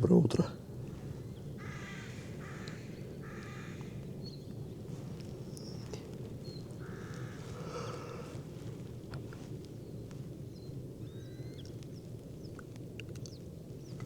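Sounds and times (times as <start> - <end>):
low background noise: 0.0 - 14.0
crow cawing: 1.6 - 4.0, 6.8 - 8.3.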